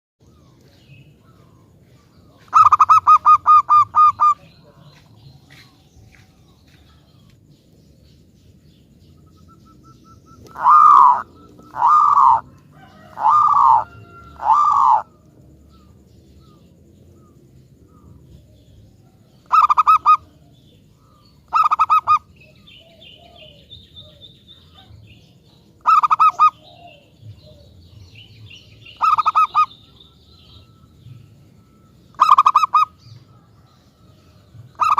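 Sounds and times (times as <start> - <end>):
dove cooing: 1.2 - 4.8, 9.2 - 34.9.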